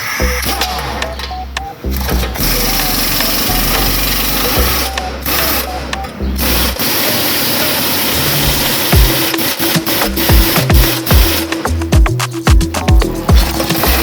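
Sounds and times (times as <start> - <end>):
rapid-stroking power tool: 6.4 - 11.4.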